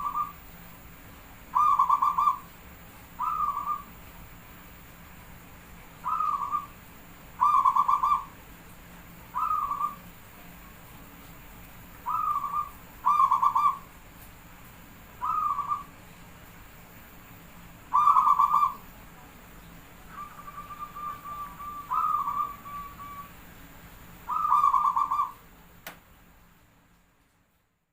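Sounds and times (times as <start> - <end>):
dove cooing: 0.0 - 0.4, 1.5 - 2.5, 3.2 - 3.9, 6.0 - 6.7, 7.4 - 8.4, 9.3 - 10.0, 12.0 - 13.9, 15.2 - 15.9, 17.9 - 18.8, 20.1 - 23.3, 24.3 - 25.4
click: 25.8 - 26.0.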